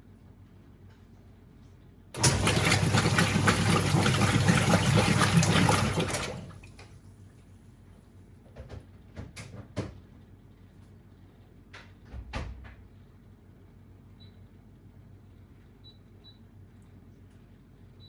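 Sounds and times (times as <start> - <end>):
washing machine rushing with clicks: 2.2 - 7.0.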